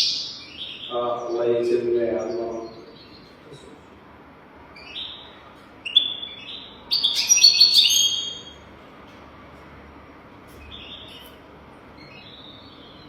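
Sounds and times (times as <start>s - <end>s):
goldfinch twittering and trills: 0.0s - 1.4s, 4.8s - 8.6s.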